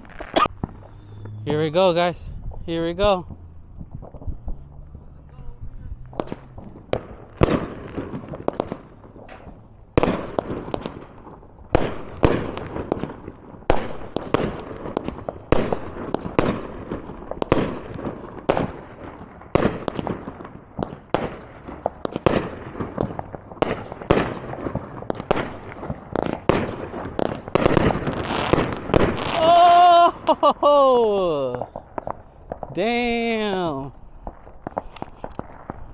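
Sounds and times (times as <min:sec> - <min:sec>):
fireworks bangs: 0:00.0 - 0:35.9
fireworks crackling: 0:00.0 - 0:35.9.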